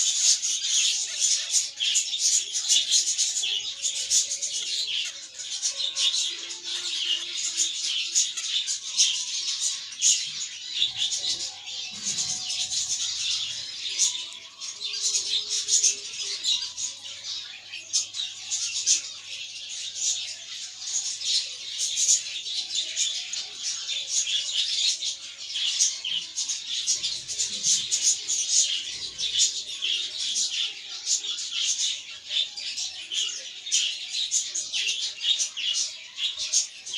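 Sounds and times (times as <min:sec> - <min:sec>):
budgerigars chattering and chirping: 0:00.0 - 0:36.9.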